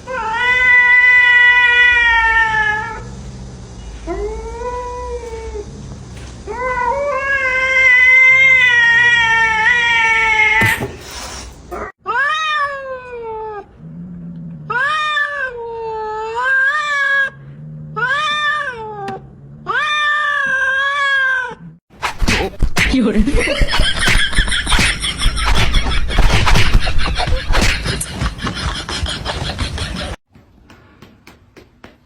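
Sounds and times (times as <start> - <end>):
cat meowing in long yowls: 6.5 - 10.6, 12.0 - 13.7, 14.7 - 17.4, 18.0 - 21.6.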